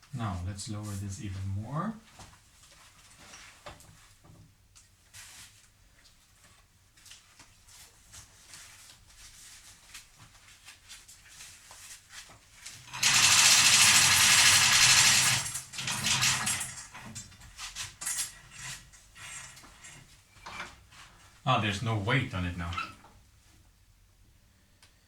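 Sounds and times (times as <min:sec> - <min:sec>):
loud power tool running: 0:12.9 - 0:17.1.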